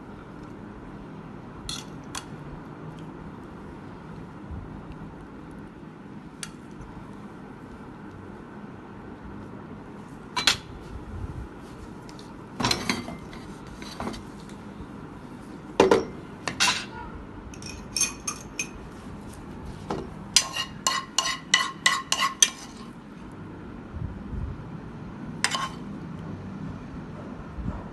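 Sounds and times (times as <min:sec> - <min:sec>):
metal utensils clinking on plates: 0:15.8 - 0:16.9, 0:17.6 - 0:18.8, 0:20.4 - 0:22.9, 0:25.4 - 0:25.8.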